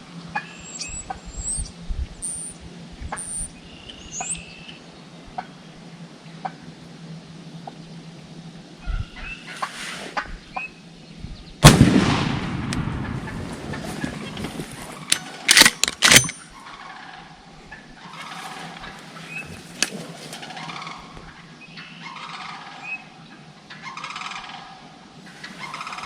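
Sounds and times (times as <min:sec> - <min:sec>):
shotgun blast: 0:11.6 - 0:13.7
turkey gobbling and clucking: 0:16.6 - 0:19.5, 0:20.4 - 0:26.0.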